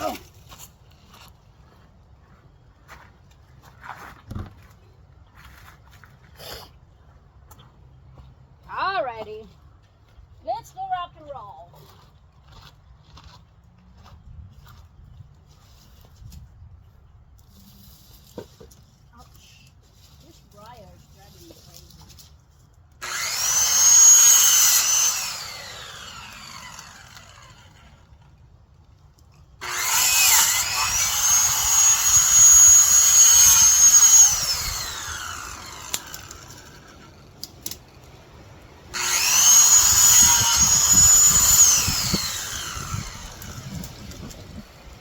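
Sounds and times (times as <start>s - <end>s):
electric saw motor whining: 23.0s - 28.2s, 29.6s - 45.0s.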